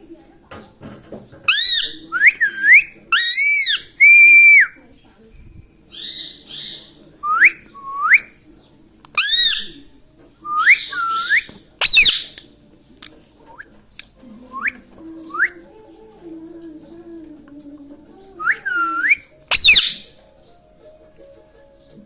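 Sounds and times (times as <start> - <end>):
parrot squawking: 1.5 - 4.7, 5.9 - 7.0, 9.2 - 9.9, 10.5 - 12.4, 18.4 - 20.2
parrot whistling: 1.5 - 4.8, 9.2 - 12.4, 18.4 - 20.1.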